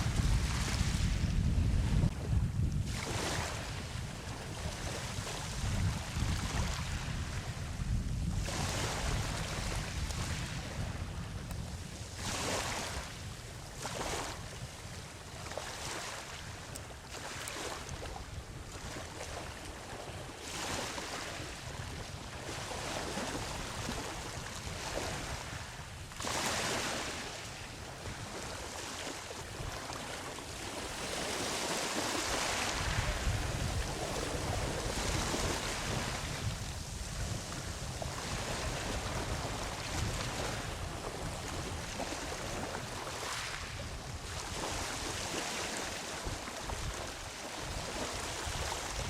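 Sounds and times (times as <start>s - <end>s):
ocean waves breaking on beach: 0.0s - 49.0s
wind on microphone: 0.0s - 49.0s.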